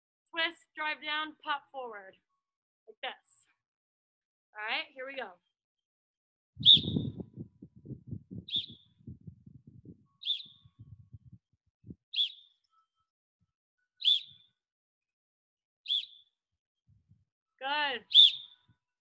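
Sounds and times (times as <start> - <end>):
bird chirping high: 6.6 - 7.3, 8.5 - 9.1, 10.1 - 11.0, 12.1 - 12.6, 14.0 - 14.5, 15.8 - 16.3, 18.0 - 18.7.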